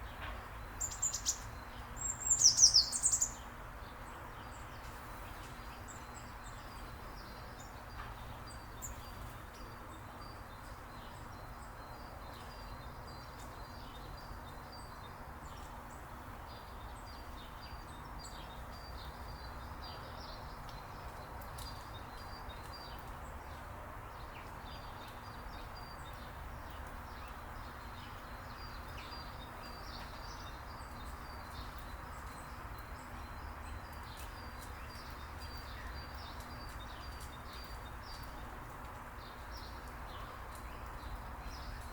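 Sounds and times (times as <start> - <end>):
low background noise: 0.0 - 41.9
small birds chirping: 0.0 - 41.9.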